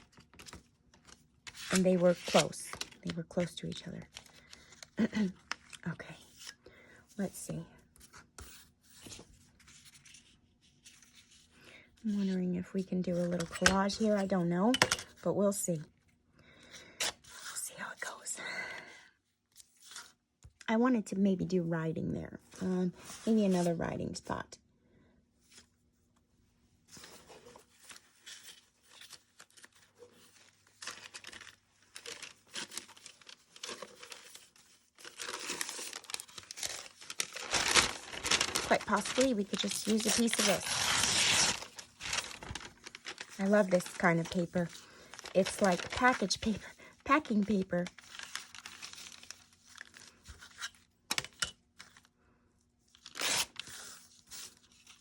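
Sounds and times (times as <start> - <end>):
paper rustling and crinkling: 0.0 - 6.6, 7.9 - 15.2, 26.9 - 52.1, 52.9 - 55.0.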